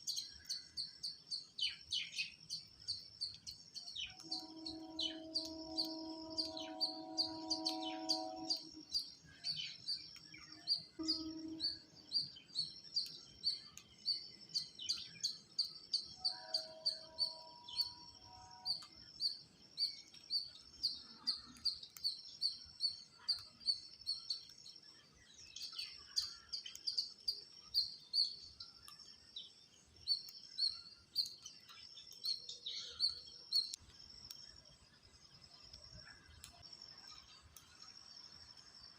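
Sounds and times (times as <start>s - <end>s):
steady multi-pitch tone: 4.2s - 8.9s, 11.0s - 11.9s.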